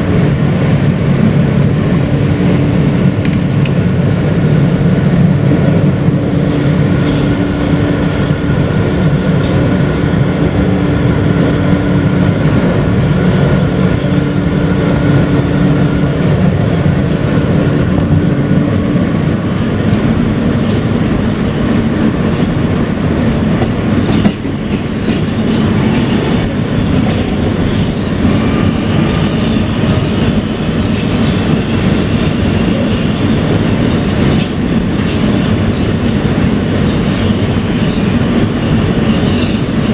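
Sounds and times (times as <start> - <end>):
train wheels clacking over rail joints: 5.2 - 39.9.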